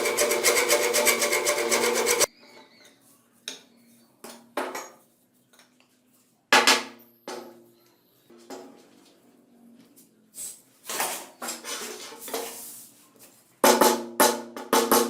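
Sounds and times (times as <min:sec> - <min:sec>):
rhythmic rasping filing: 0:00.0 - 0:02.3.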